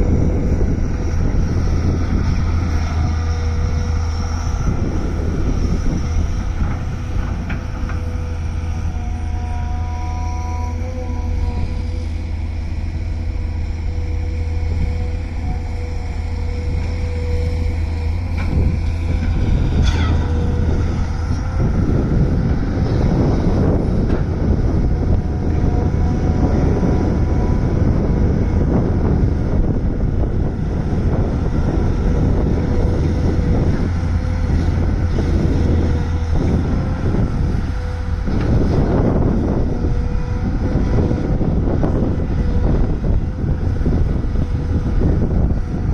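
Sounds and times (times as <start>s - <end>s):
excavator engine and hydraulics: 0.0s - 45.9s
rising hydraulic whine: 0.0s - 45.9s.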